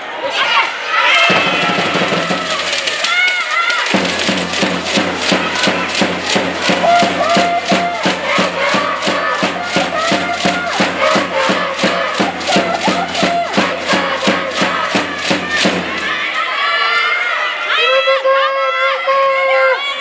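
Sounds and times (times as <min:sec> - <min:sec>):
crowd chanting in unison: 0:00.0 - 0:17.9
fast steady drum beat: 0:01.3 - 0:16.4.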